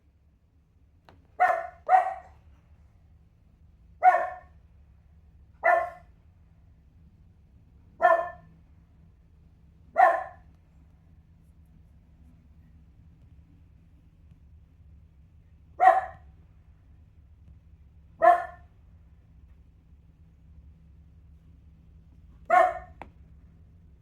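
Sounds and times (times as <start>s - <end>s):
dog barking: 1.4s - 2.4s, 4.0s - 4.6s, 5.6s - 6.1s, 8.0s - 8.5s, 9.9s - 10.5s, 15.8s - 16.3s, 18.2s - 18.7s, 22.5s - 23.0s.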